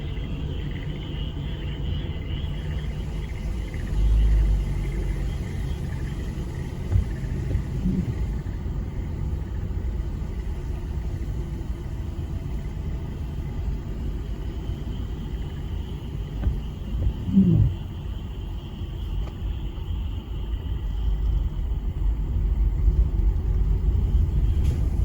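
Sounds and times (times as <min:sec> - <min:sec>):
faint frog chorus: 0:00.0 - 0:24.7
low rumble: 0:02.0 - 0:14.1, 0:16.4 - 0:18.2.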